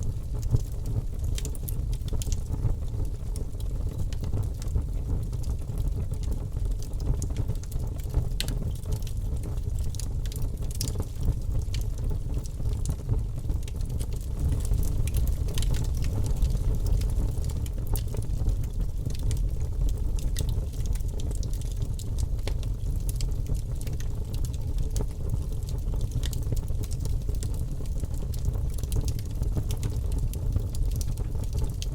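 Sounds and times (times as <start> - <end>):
fire crackling and popping: 0.0 - 31.9
low rumble of flames: 0.0 - 31.9.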